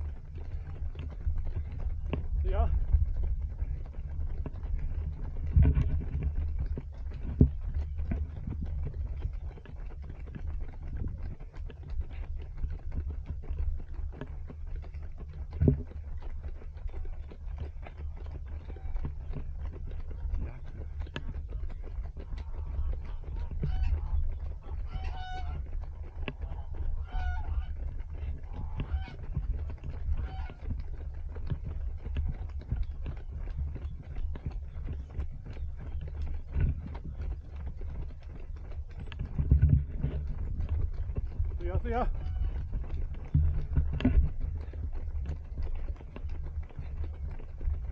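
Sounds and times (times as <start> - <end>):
low rumble: 0.0 - 47.9
running footsteps: 0.0 - 47.9
camera knocking and rubbing: 0.9 - 9.7, 15.5 - 16.0, 27.8 - 47.1.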